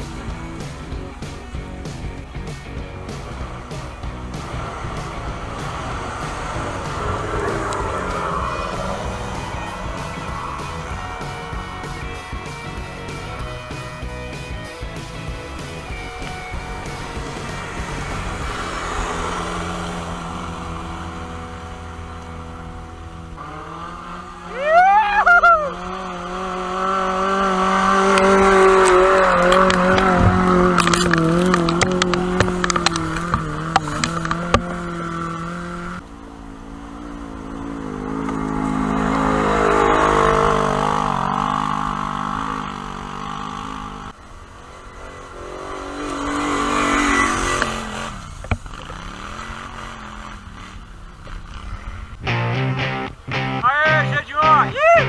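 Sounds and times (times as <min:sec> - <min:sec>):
off-road engines revving: 0:00.0 - 0:55.0
loud gliding squeal: 0:04.2 - 0:12.3.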